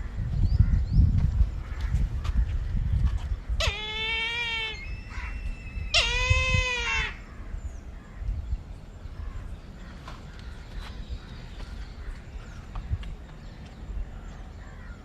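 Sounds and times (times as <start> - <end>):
kite calling: 3.5 - 7.3.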